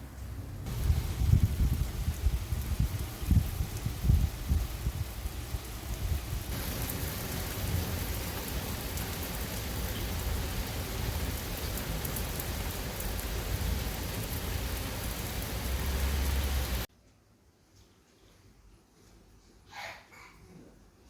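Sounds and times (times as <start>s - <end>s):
steady rain falling: 0.0s - 16.9s.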